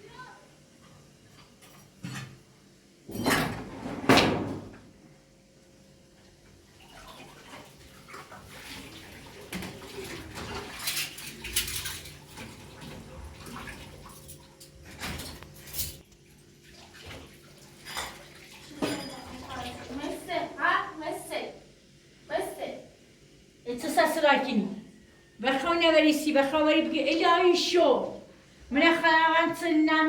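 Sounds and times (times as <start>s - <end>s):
dishes and cutlery clattering: 1.3s - 2.4s, 10.4s - 12.6s, 14.1s - 16.0s, 17.8s - 19.6s.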